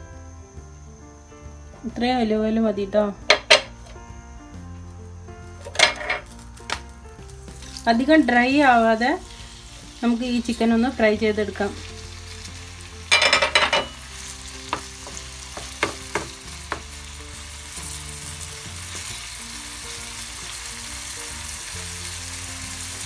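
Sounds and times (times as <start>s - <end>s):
chicken sizzling in oil: 4.8s - 23.0s
spatula scraping and knocking: 5.6s - 6.8s.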